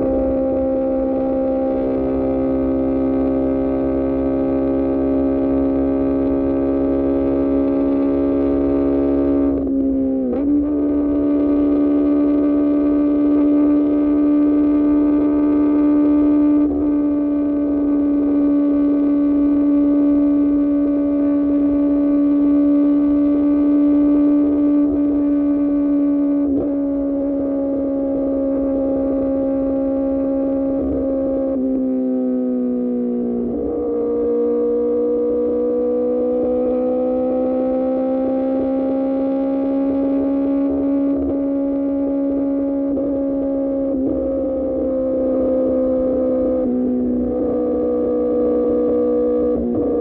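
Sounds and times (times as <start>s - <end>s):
motorcycle engine at high revs: 0.0s - 50.0s.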